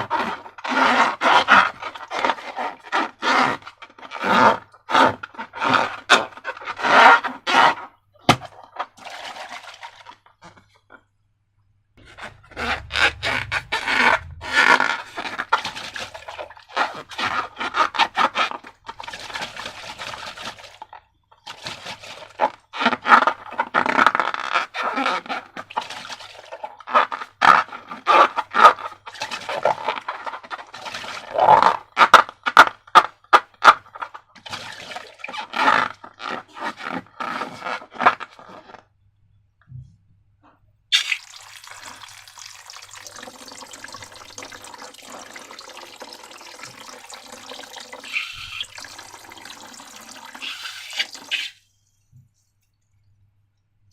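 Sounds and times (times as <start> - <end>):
slime squelching by hand: 12.0 - 38.7, 40.9 - 51.7.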